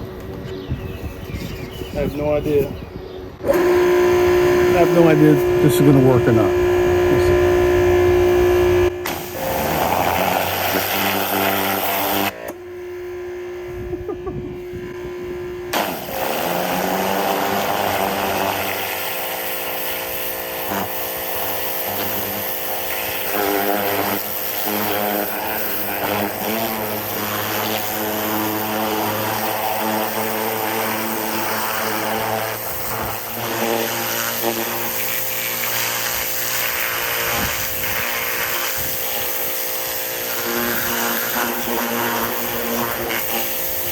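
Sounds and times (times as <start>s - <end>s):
pressure washer motor humming: 3.4s - 43.9s
water jet hissing: 9.0s - 12.4s, 15.8s - 43.9s.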